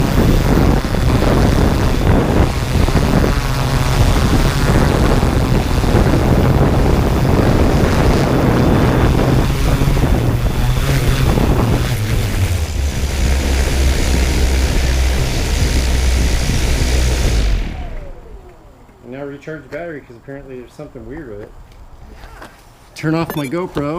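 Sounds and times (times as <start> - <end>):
drone propellers humming: 0.0 - 19.8
wind buffeting microphone: 0.0 - 22.1.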